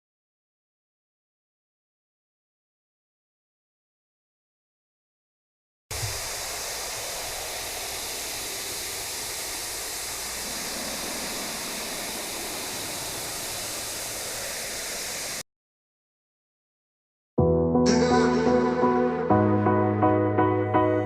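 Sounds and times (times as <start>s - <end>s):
waterfall rushing: 5.9s - 15.4s.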